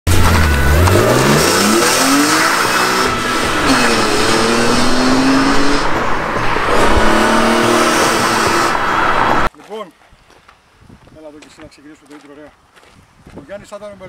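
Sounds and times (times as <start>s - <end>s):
car engine revving: 0.1s - 9.5s.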